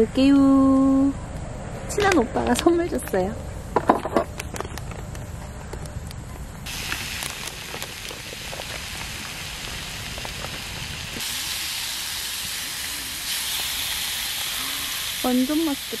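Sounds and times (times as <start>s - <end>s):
meat sizzling in a frying pan: 6.7s - 16.0s.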